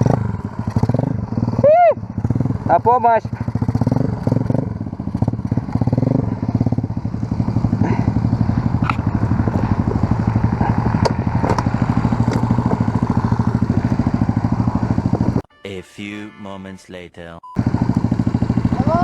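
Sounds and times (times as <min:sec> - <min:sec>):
motorbike engine idling: 0:00.0 - 0:15.4, 0:17.6 - 0:19.0.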